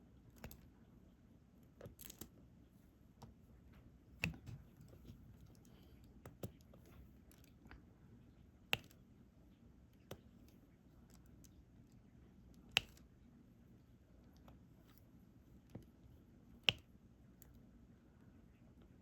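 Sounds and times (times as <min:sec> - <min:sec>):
faint clicks and taps: 0:03.2 - 0:07.9, 0:10.0 - 0:13.1.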